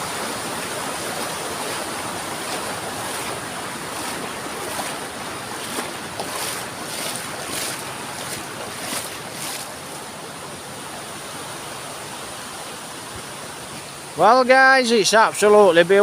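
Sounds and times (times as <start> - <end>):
river water rushing over rocks: 0.0 - 16.0.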